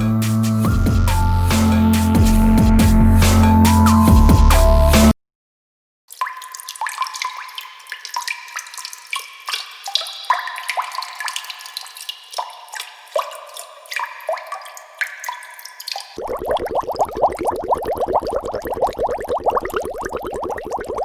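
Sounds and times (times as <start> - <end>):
water drops plinking: 6.1 - 21.0.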